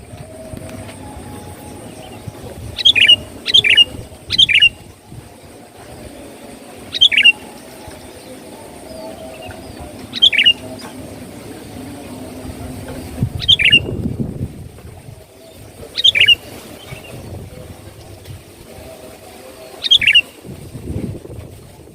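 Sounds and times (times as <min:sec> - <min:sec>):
bulbul singing: 0:00.0 - 0:14.2, 0:15.3 - 0:18.2, 0:18.8 - 0:20.4
low rumble: 0:00.0 - 0:16.0.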